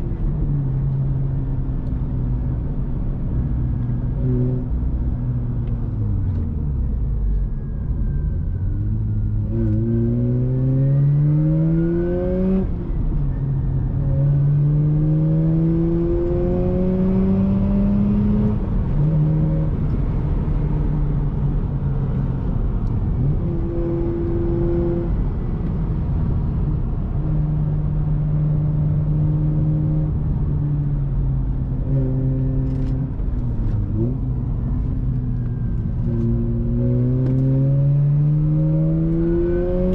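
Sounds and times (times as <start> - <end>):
rotary engine accelerating hard: 8.0 - 39.9.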